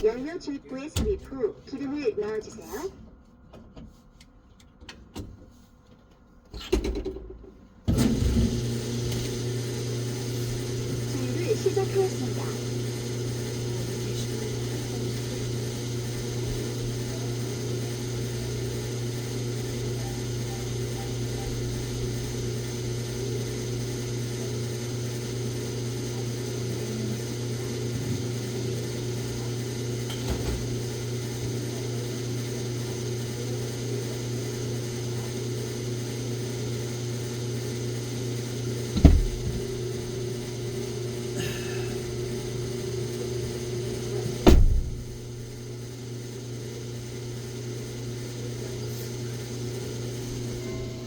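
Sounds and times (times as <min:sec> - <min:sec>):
fuel pump mechanical hum: 0:00.0 - 0:51.0
knocks: 0:39.0 - 0:39.7.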